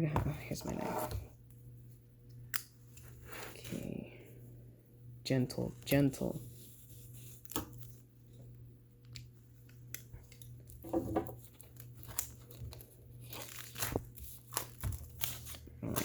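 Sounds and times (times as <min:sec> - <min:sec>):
packaging crinkles: 0:09.6 - 0:16.0
knife slitting packaging: 0:11.6 - 0:16.0.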